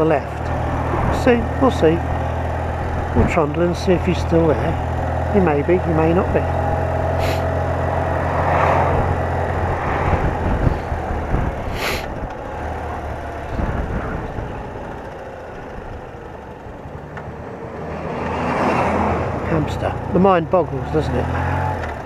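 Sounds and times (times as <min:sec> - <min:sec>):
motorcycle engine running: 0:00.0 - 0:17.9, 0:19.1 - 0:22.0
road and wind noise: 0:00.0 - 0:22.0
short hiss: 0:07.2 - 0:07.4.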